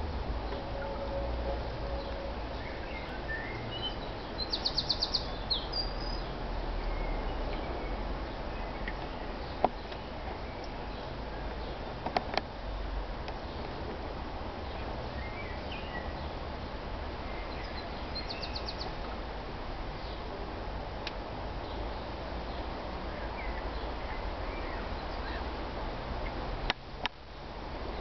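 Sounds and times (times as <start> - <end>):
small birds chirping: 2.0 - 14.0, 14.6 - 16.4, 17.2 - 19.1, 20.0 - 20.3, 21.4 - 25.6.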